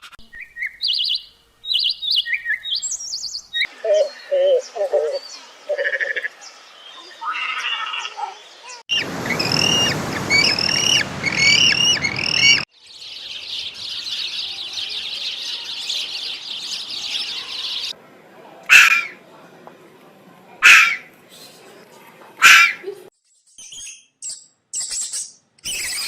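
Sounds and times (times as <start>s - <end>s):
birds chirping: 0.3s - 18.0s
loud bird call: 8.9s - 12.7s, 18.7s - 19.2s, 20.6s - 21.1s, 22.4s - 22.8s
high-pitched bird chatter: 23.5s - 26.0s.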